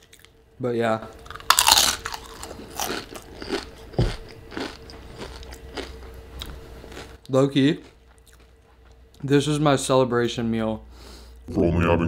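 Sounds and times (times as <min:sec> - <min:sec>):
chewing crunches: 0:01.2 - 0:09.3
crunchy bite into chip: 0:01.3 - 0:03.7.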